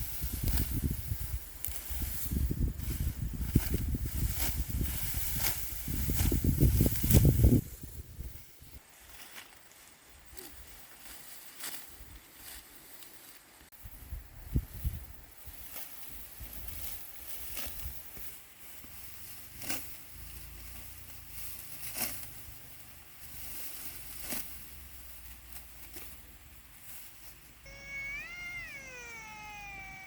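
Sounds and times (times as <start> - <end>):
high wavering cry: 27.7 - 30.0.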